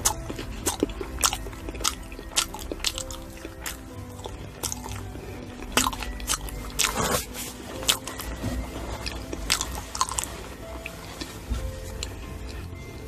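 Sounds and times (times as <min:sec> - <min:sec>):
wet mouth clicks: 0:00.0 - 0:07.3
crunching fruit bites: 0:00.0 - 0:12.6.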